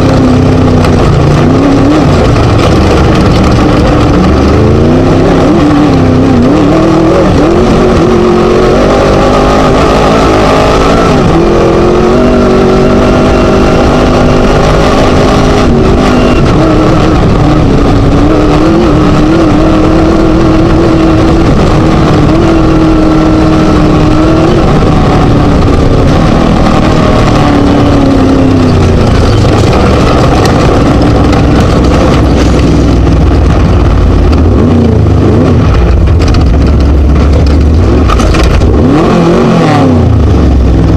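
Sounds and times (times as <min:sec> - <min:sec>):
race buggy engine revving: 0:00.0 - 0:40.9.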